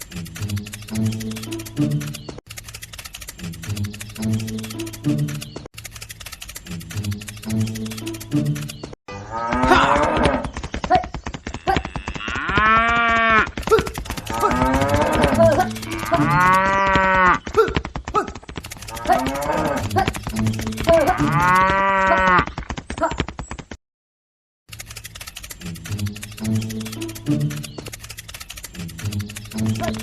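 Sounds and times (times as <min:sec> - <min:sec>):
cow mooing: 0:09.1 - 0:10.4, 0:11.6 - 0:13.5, 0:14.2 - 0:17.4, 0:18.9 - 0:19.8, 0:20.8 - 0:22.5.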